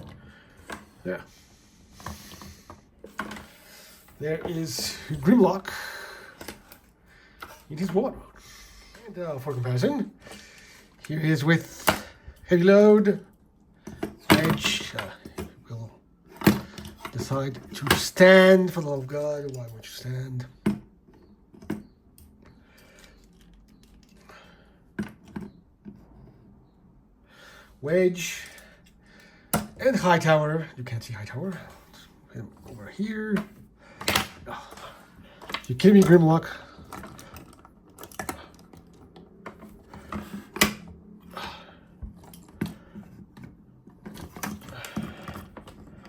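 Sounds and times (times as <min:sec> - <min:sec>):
plastic toys clicking and tapping: 0:33.3 - 0:41.0, 0:42.0 - 0:46.0.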